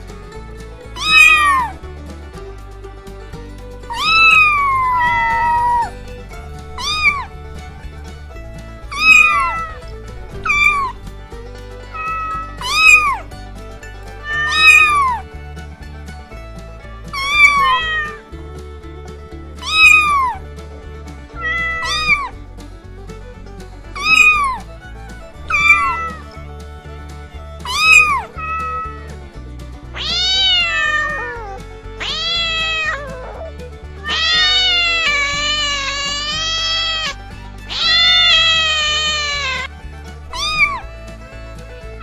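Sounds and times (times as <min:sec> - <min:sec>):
background music: 0:00.0 - 0:42.0
cat meowing: 0:17.1 - 0:18.1, 0:19.6 - 0:20.4, 0:30.0 - 0:39.7, 0:40.3 - 0:40.9.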